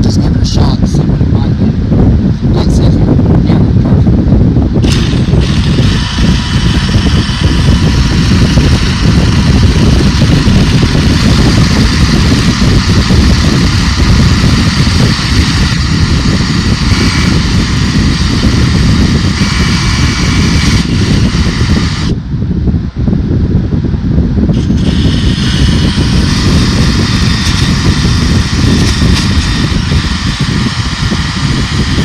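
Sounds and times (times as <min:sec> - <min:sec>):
electric drill with abrasive bit: 0:04.8 - 0:22.2, 0:24.5 - 0:32.0.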